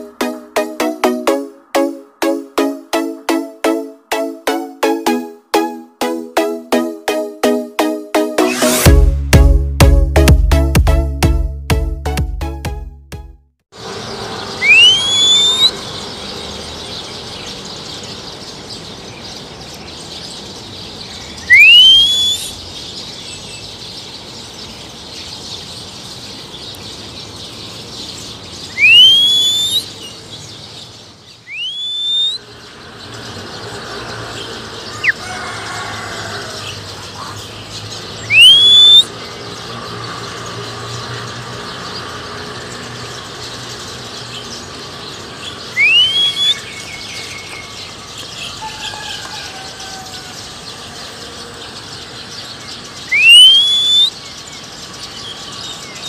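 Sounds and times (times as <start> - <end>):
rising whistle: 14.6 - 15.8, 21.5 - 22.5, 28.8 - 29.9, 31.5 - 32.4, 38.3 - 39.1, 45.8 - 46.6, 53.1 - 54.1.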